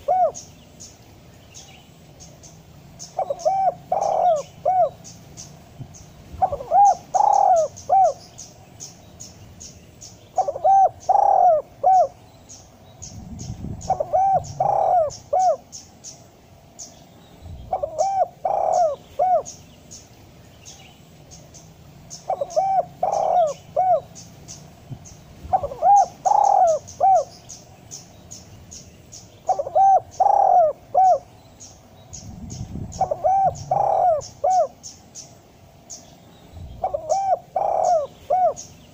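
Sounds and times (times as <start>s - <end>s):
dove cooing: 0.0s - 0.6s, 3.0s - 5.2s, 6.3s - 8.4s, 10.3s - 12.2s, 13.4s - 15.8s, 17.6s - 19.6s, 22.1s - 24.5s, 25.4s - 27.4s, 29.4s - 31.3s, 32.4s - 34.9s, 36.7s - 38.9s.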